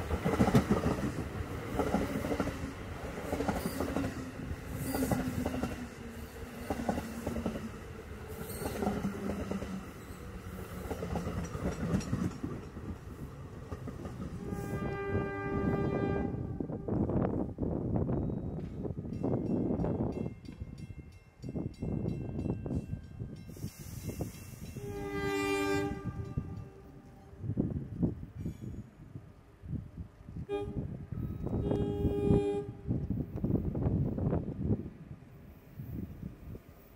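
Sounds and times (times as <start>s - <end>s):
train rushing past: 0.0s - 17.4s
wheels clattering over rail joints: 8.3s - 14.4s.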